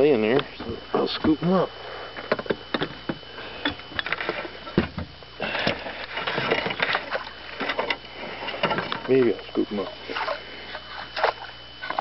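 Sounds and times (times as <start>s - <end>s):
landing net rustling and splashing: 4.0s - 9.1s.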